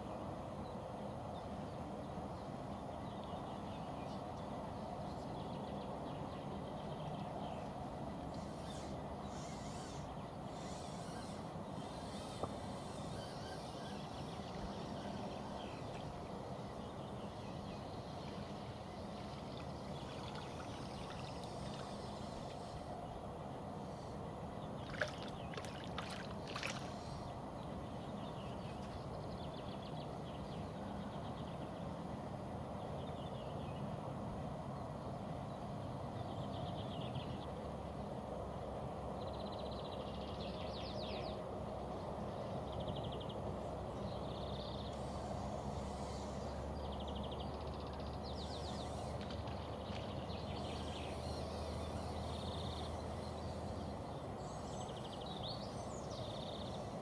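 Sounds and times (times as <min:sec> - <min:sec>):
bird trills: 0:08.3 - 0:16.4
low rushing water: 0:24.8 - 0:27.2.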